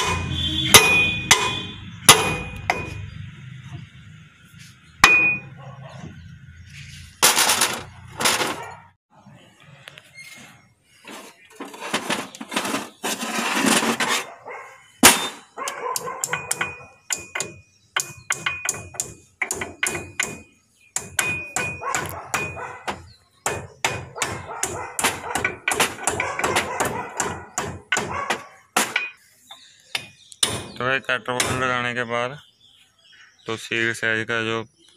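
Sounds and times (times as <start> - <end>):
hammer striking metal: 0.0 - 3.2, 5.0 - 5.6, 15.0 - 29.2, 30.0 - 30.8, 31.4 - 31.8
rough scraping: 6.1 - 8.9, 10.1 - 15.4.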